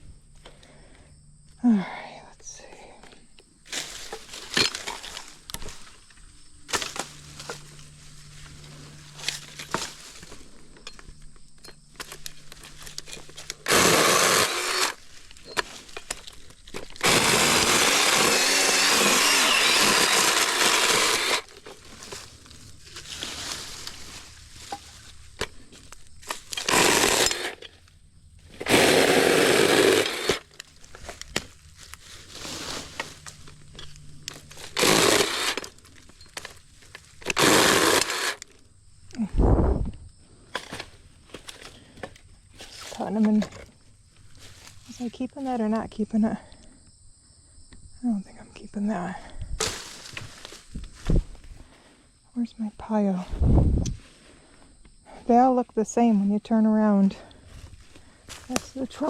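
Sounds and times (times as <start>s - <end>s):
branches rustling: 3.4s - 39.2s, 40.0s - 45.5s, 49.0s - 52.2s, 57.1s - 59.0s
battery-powered saw cutting branches: 13.4s - 15.7s, 16.9s - 22.4s, 26.2s - 27.7s, 28.5s - 30.7s, 34.3s - 36.5s, 37.2s - 38.5s.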